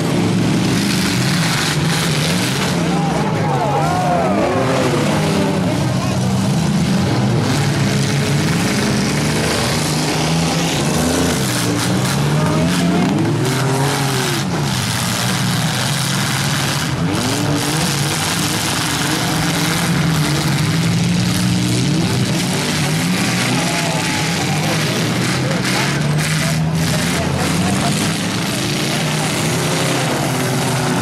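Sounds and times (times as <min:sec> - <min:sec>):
car engines revving: 0:00.0 - 0:31.0.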